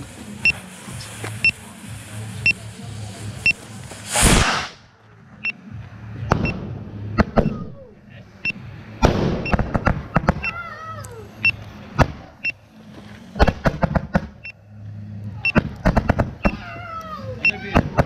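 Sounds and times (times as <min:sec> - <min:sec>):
firework crackling: 0:00.0 - 0:05.0, 0:05.9 - 0:14.4, 0:15.0 - 0:18.0
firework whoosh: 0:00.0 - 0:05.0
firework bangs: 0:03.7 - 0:04.9, 0:08.9 - 0:10.6, 0:13.4 - 0:14.4, 0:15.6 - 0:16.4.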